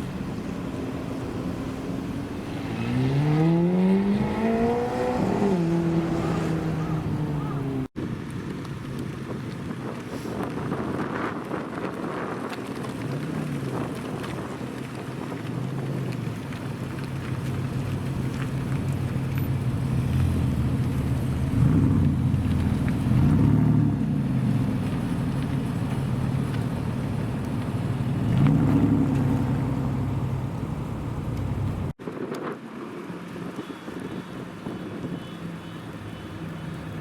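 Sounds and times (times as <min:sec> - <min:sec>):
supercar engine revving: 0:00.0 - 0:07.9, 0:28.0 - 0:31.9.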